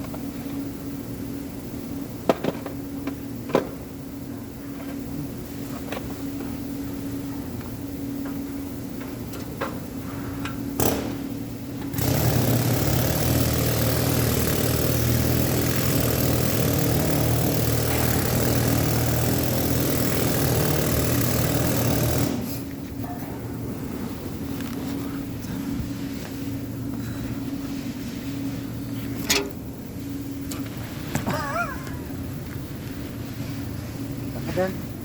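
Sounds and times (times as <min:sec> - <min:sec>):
welding machine hum: 0:04.9 - 0:23.0.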